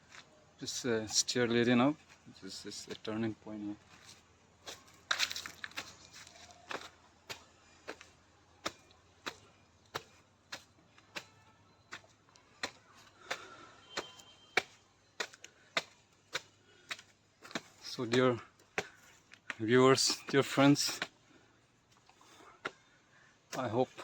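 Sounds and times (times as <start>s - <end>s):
footsteps walking: 3.8s - 8.1s.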